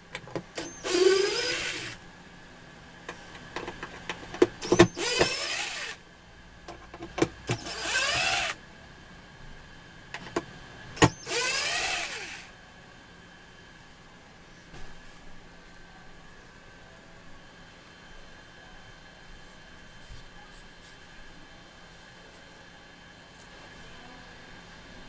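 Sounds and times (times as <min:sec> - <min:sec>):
power drill motor whine: 0:00.5 - 0:02.0, 0:04.5 - 0:06.0, 0:07.5 - 0:08.6, 0:11.0 - 0:12.5
handling clicks and knocks: 0:03.1 - 0:04.9, 0:10.2 - 0:11.2.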